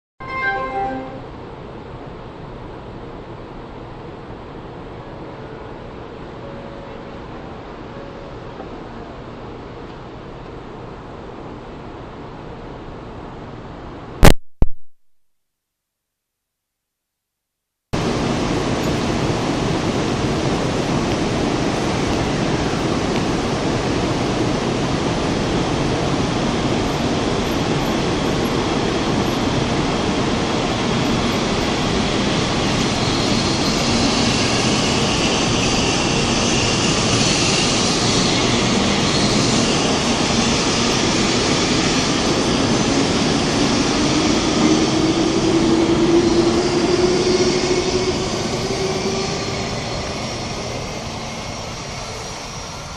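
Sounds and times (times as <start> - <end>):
high-speed train rushing: 0.2 - 14.1, 18.0 - 52.9.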